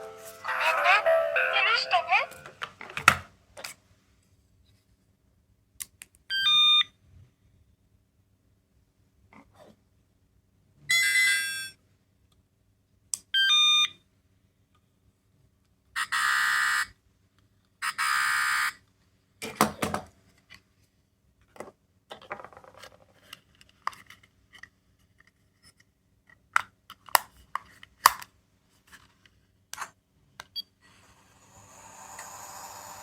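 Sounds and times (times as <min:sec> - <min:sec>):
steady hiss: 0:31.0 - 0:33.0.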